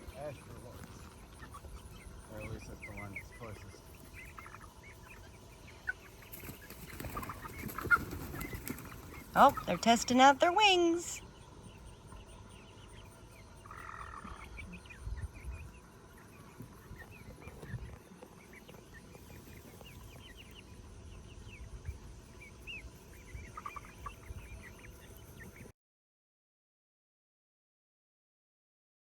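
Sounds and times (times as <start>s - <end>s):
chickens chirping: 0.0s - 25.7s
chicken trilling call: 7.0s - 11.2s.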